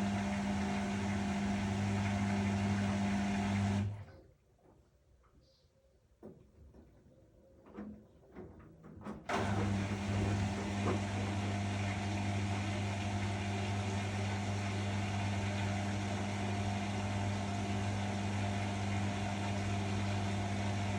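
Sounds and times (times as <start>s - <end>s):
washing machine spinning: 0.0s - 4.0s, 9.3s - 20.9s.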